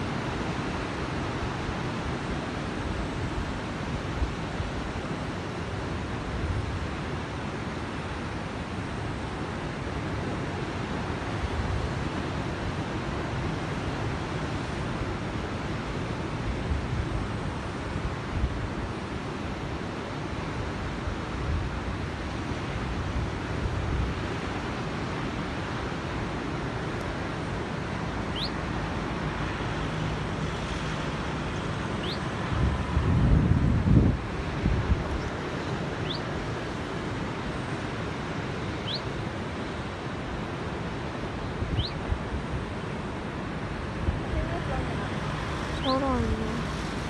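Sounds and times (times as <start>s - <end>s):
ocean surf roaring: 0.0s - 47.0s
wind: 0.0s - 47.0s
faint rising chirps: 28.3s - 28.6s, 36.0s - 36.3s.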